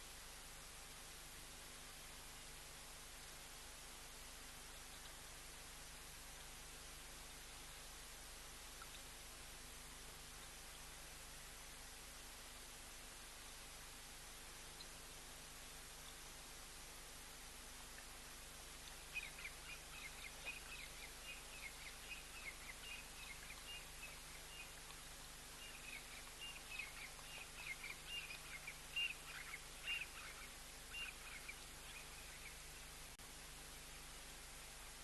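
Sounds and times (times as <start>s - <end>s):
faint steady hiss: 0.0s - 35.0s
bird twittering: 25.6s - 32.6s.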